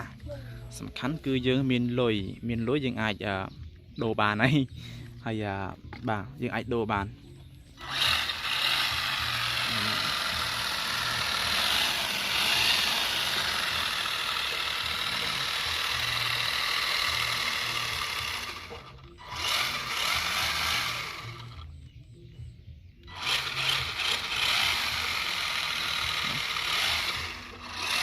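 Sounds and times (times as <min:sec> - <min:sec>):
electric rc car motor whine: 0:07.8 - 0:21.7, 0:23.0 - 0:28.0.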